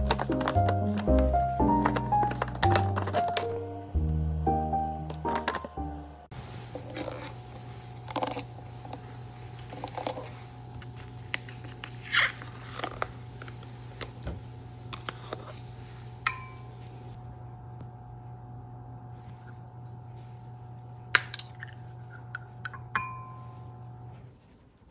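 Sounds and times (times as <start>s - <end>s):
steady electrical hum: 5.3s - 24.8s.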